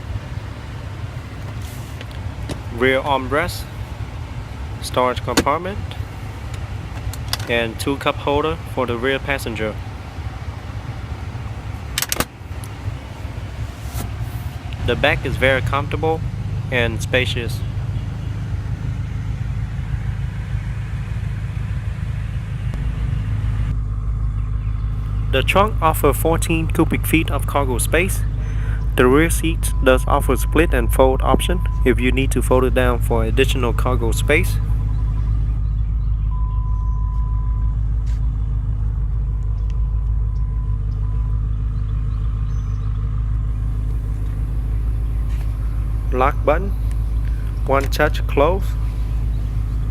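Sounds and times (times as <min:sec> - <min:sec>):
car engine idling inside cabin: 0:00.0 - 0:49.9.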